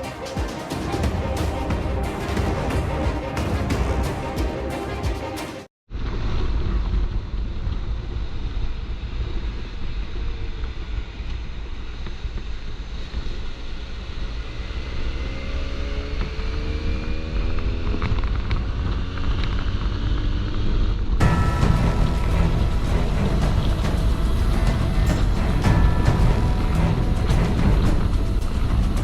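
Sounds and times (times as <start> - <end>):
wind rumble on microphone: 5.9 - 29.0
motorcycle engine running: 14.5 - 29.0.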